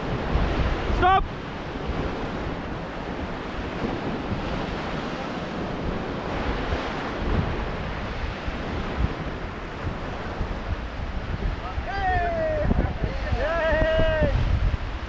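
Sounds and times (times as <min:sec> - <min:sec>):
whitewater rushing: 0:00.0 - 0:08.7
wind buffeting microphone: 0:00.0 - 0:15.0.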